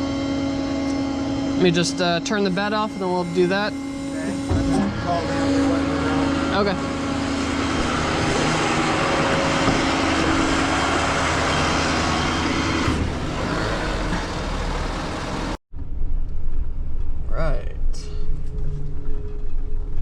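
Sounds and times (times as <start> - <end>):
tow truck running: 0.0 - 15.6
low rumble: 3.6 - 20.0.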